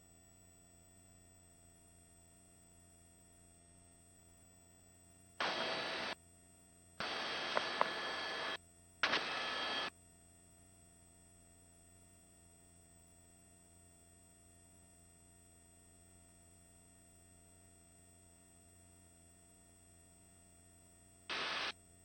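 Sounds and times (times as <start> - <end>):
faint electronic hum: 5.4 - 6.2, 7.0 - 9.9, 21.3 - 21.7
helicopter cabin noise hiss: 5.4 - 6.2, 7.0 - 9.9, 21.3 - 21.7
small clicks: 5.4 - 6.2, 7.0 - 9.9, 21.3 - 21.7.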